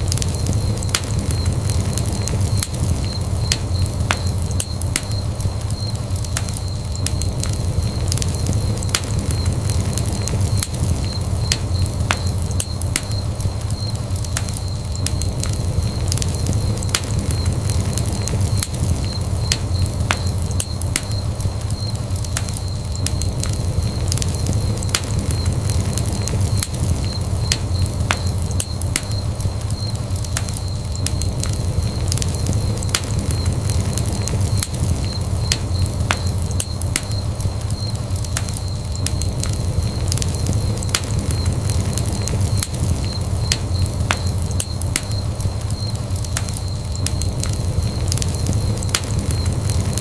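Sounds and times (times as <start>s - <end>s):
burning logs crackling and popping: 0.0s - 50.0s
flames rumbling: 0.0s - 50.0s.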